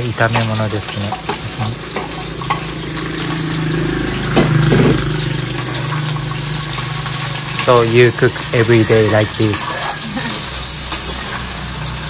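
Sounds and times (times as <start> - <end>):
eggplant frying in a pot: 0.0 - 12.0
utensil scraping a plate: 4.6 - 11.6.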